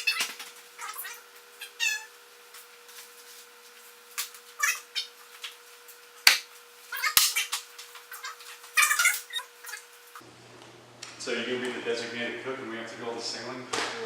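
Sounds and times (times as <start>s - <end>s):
high-pitched animal calls: 0.0s - 2.1s, 4.6s - 5.2s, 6.9s - 7.5s, 8.1s - 9.9s.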